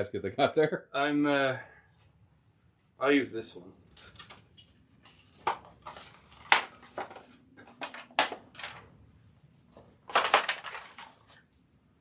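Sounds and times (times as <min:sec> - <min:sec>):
packaging rustling and clicking: 0:09.8 - 0:11.6.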